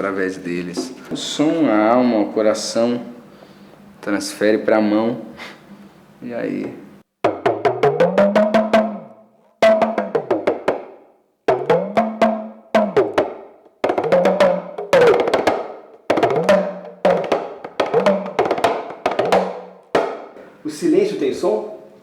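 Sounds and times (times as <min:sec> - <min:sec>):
hand drum with bending pitch: 0:07.2 - 0:20.4.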